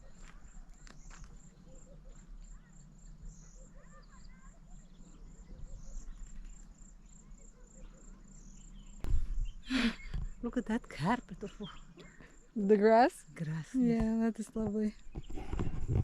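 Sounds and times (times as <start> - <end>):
faint bird twitters: 0.0 - 10.5
insects chirping: 0.0 - 16.0.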